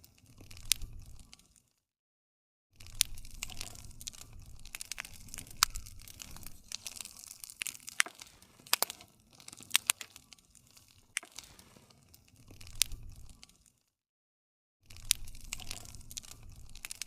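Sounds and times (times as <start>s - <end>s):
low rumble of flame: 0.0s - 1.6s, 2.8s - 13.7s, 14.9s - 17.0s
wood fire crackling and popping: 0.0s - 1.8s, 2.8s - 13.9s, 14.8s - 17.0s.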